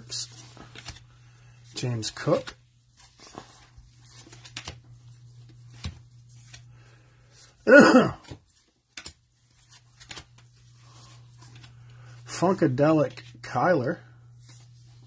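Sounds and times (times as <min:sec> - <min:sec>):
trading cards flipped: 0:00.2 - 0:01.2, 0:02.0 - 0:06.7, 0:08.2 - 0:12.1.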